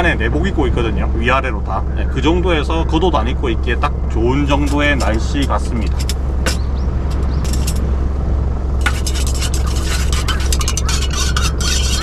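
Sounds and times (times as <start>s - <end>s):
portable generators humming: 0.0s - 12.0s
clicks and scraping handling noises: 4.6s - 7.8s, 8.8s - 12.0s.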